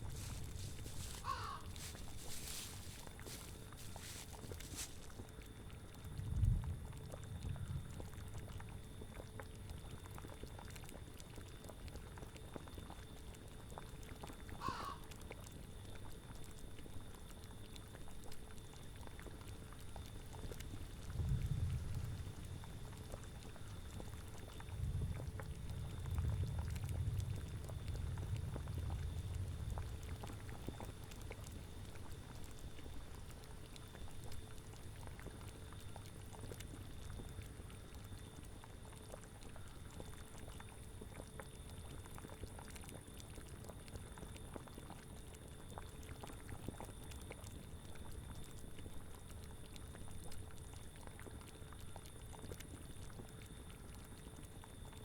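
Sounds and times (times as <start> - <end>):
cauldron bubbling: 0.0 - 5.5
brief animal call: 1.0 - 2.2, 14.6 - 15.0.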